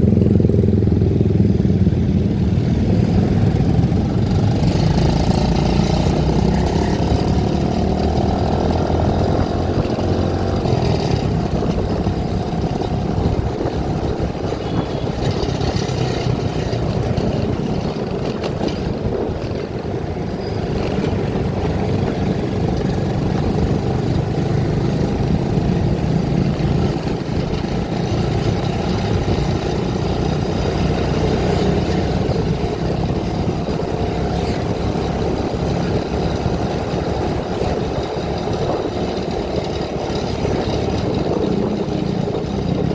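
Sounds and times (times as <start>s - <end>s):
road noise: 0.0s - 42.9s
vehicle engine running: 0.0s - 42.9s.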